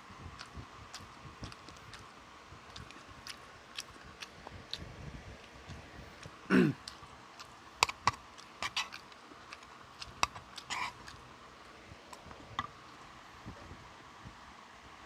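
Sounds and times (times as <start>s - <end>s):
chewing and mouth noises: 0.2s - 13.1s
low throat sound: 6.5s - 6.9s.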